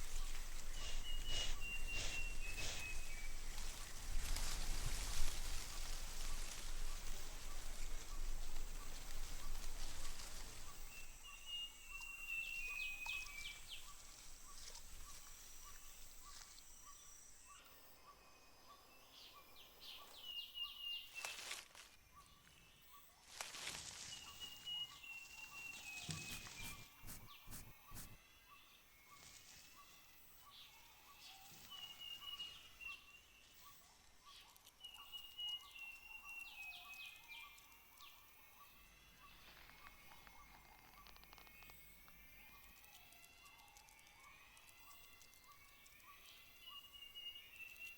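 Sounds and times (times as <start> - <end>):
insect chorus: 7.0 - 21.9
rustling: 26.0 - 28.2.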